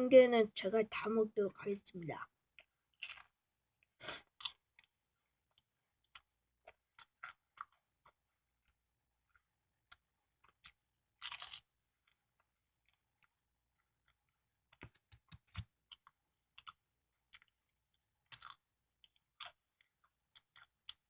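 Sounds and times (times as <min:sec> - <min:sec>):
pastry crunching bites: 0:02.6 - 0:03.4, 0:09.8 - 0:12.2, 0:18.2 - 0:21.0.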